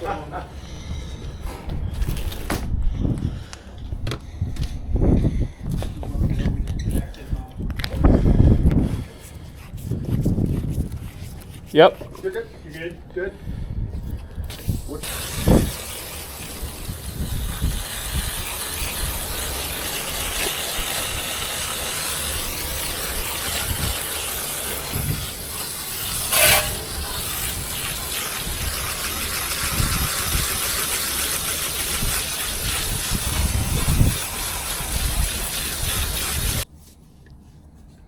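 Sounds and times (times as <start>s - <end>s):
hose spray nozzle hissing: 14.6s - 36.6s
water gushing: 15.0s - 36.6s.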